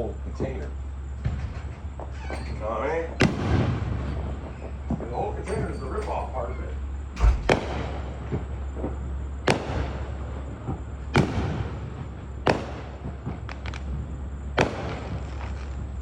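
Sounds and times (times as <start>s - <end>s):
fireworks bangs with crackle: 0.0s - 6.3s, 7.2s - 16.0s
small firework pops: 7.2s - 10.0s, 10.6s - 11.8s, 12.4s - 14.0s, 14.6s - 15.9s.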